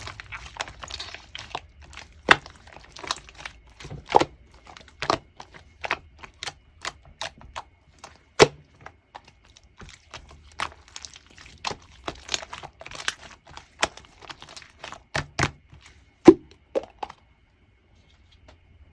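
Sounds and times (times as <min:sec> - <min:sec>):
slime clicking and popping: 0:00.0 - 0:07.6.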